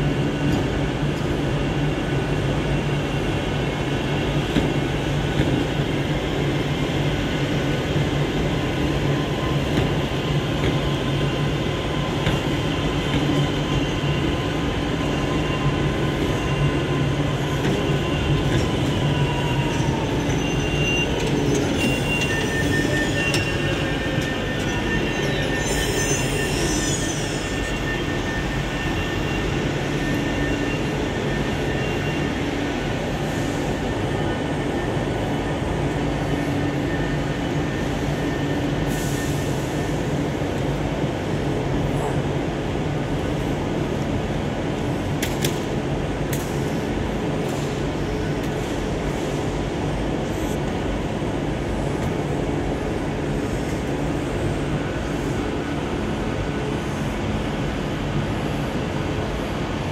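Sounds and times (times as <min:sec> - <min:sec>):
low train rumble: 0:00.0 - 0:59.9
high wheel squeal: 0:11.2 - 0:34.0.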